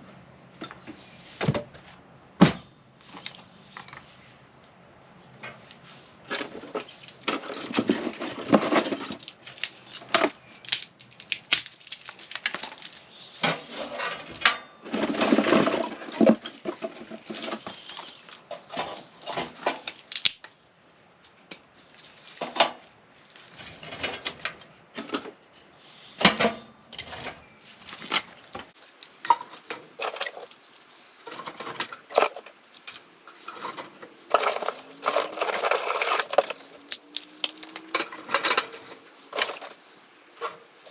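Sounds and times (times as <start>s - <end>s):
rustling: 28.8s - 40.9s.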